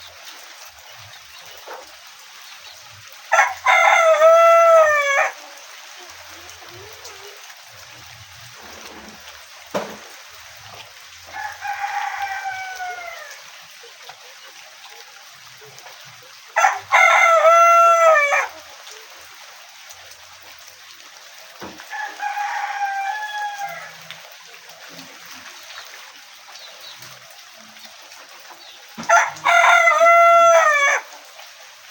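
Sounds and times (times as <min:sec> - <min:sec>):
rooster crowing: 0:03.3 - 0:05.5, 0:11.3 - 0:13.4, 0:16.6 - 0:18.6, 0:21.8 - 0:24.1, 0:29.0 - 0:31.1.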